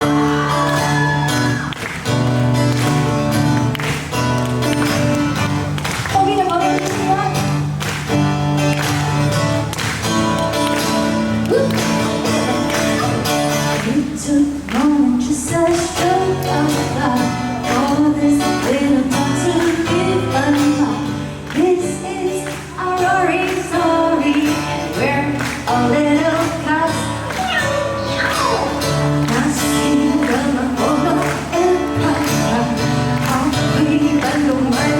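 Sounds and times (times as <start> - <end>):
guitar: 0.0 - 34.9
person singing: 11.5 - 34.9.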